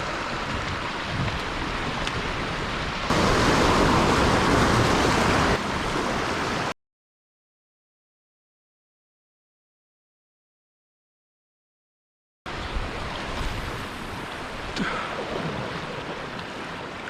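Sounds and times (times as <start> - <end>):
surf washing on rocky shore: 0.0 - 6.7, 12.5 - 17.0.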